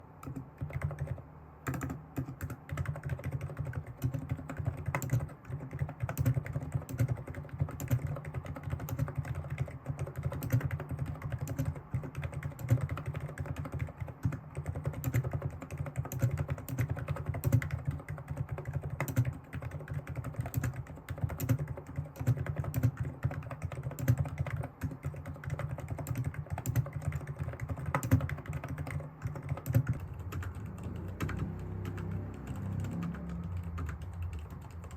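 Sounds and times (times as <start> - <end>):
fast keyboard typing: 0.0 - 34.9.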